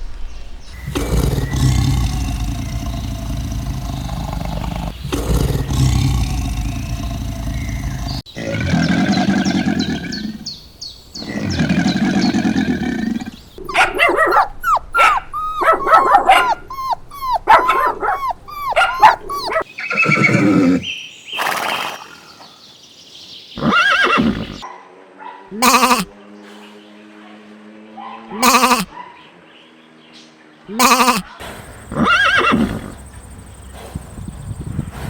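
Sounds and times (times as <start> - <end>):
animal calls: 0.7 - 10.6, 11.2 - 22.5, 25.5 - 26.1, 28.2 - 29.2, 30.7 - 35.0.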